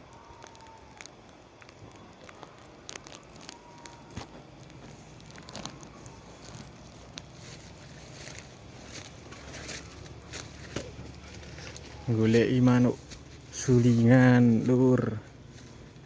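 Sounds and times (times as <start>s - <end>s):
faint whistle-like tones: 0.0s - 7.2s
dry vegetation crackling and rustling: 0.0s - 16.0s.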